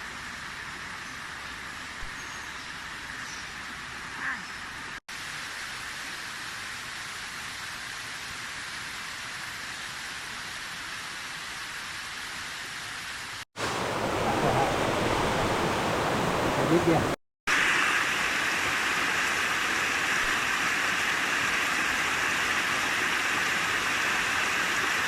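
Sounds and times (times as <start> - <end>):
flowing water rushing: 7.5 - 25.0.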